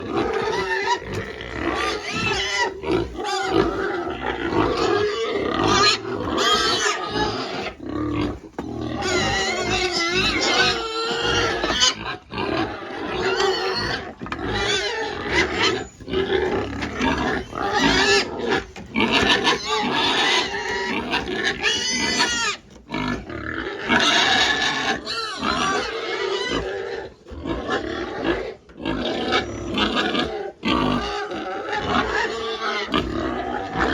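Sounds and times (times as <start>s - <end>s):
piglets squealing and grunting: 0.0s - 33.9s.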